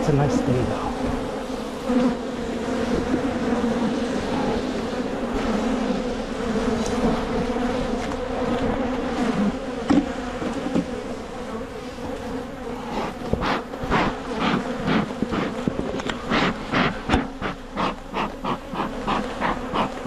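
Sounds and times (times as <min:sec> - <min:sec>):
honeybees buzzing: 0:00.0 - 0:20.0
sharp knocks and scrapes: 0:09.8 - 0:11.0, 0:12.9 - 0:20.0.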